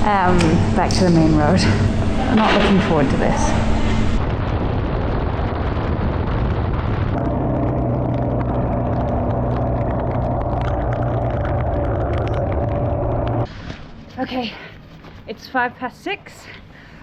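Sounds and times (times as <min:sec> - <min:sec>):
rushing wind noise: 0:00.0 - 0:13.5
motorcycle engine running: 0:07.2 - 0:13.5.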